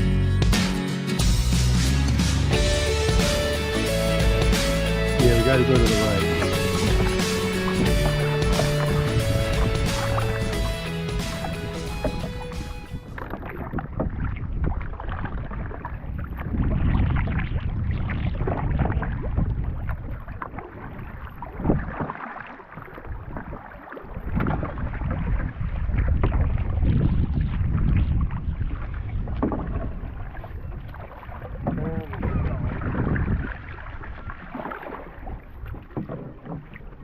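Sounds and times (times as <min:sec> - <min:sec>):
paddle strokes splashing water: 0:01.2 - 0:37.0
wind buffeting microphone: 0:05.2 - 0:22.1, 0:22.8 - 0:37.0.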